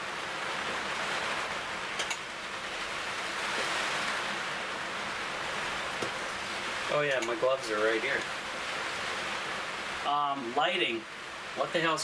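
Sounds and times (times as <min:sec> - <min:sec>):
heavy pouring rain: 0:00.0 - 0:12.0.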